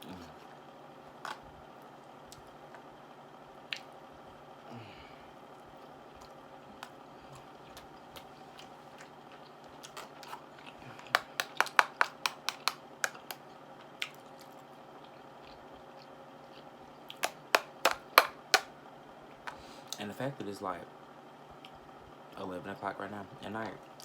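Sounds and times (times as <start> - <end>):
chewing with wet mouth clicks: 3.7 - 3.9, 6.1 - 17.8.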